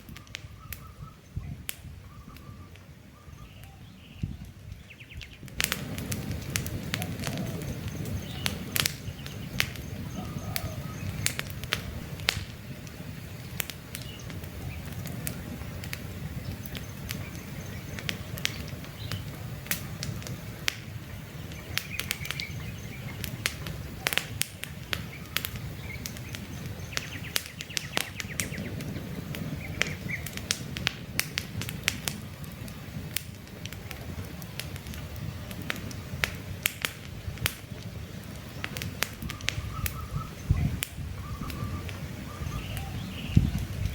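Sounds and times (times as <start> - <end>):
faint bird chirps: 0.0 - 5.5, 7.0 - 11.4, 38.5 - 43.9
low rumble of flames: 0.0 - 43.9
wood crackling and popping: 0.0 - 43.9.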